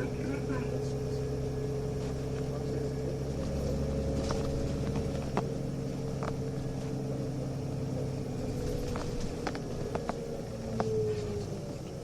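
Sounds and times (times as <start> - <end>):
bus diesel engine rumble: 0.0 - 12.0
body rattles and clicks: 3.4 - 7.0, 8.4 - 11.0.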